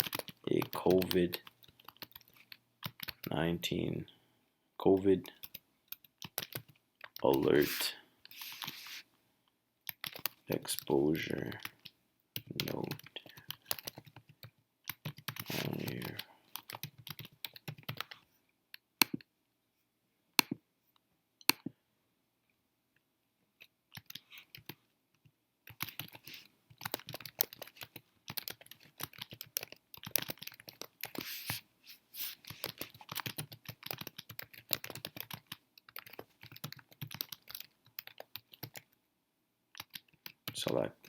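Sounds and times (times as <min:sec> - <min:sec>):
typing on computer keyboard: 0:00.0 - 0:03.3, 0:05.0 - 0:07.5, 0:09.9 - 0:10.9, 0:11.5 - 0:18.2, 0:23.9 - 0:24.8, 0:25.6 - 0:31.2, 0:32.4 - 0:38.9, 0:39.7 - 0:40.7.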